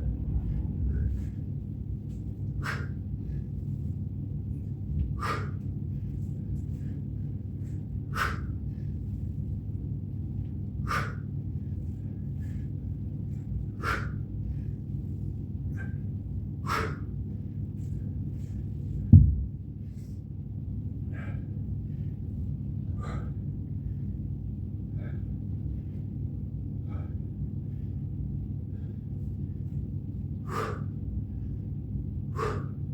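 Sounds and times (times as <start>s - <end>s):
heavy low thud: 0.0s - 2.0s, 19.0s - 19.6s
low steady hum: 0.0s - 32.9s.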